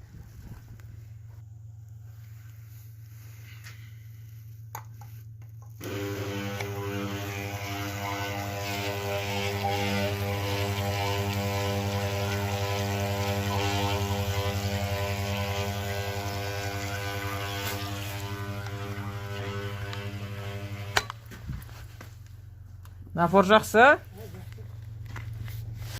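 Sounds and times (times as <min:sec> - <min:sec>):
vibration pump buzzing: 0:05.8 - 0:21.9.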